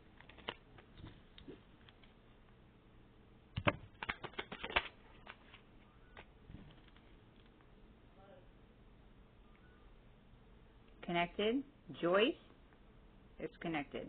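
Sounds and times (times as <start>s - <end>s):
cards clicking and flicking: 0.2s - 1.5s, 3.6s - 5.6s.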